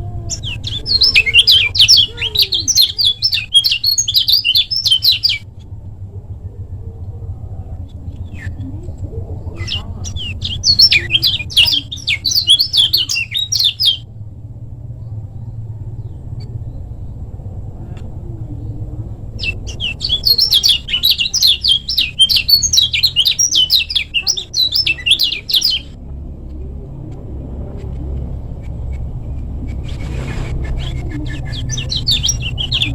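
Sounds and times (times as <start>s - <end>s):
small bird chattering song: 0.0s - 5.7s, 7.0s - 14.0s, 18.6s - 26.0s, 27.3s - 32.9s
steady low rumble: 0.0s - 32.9s.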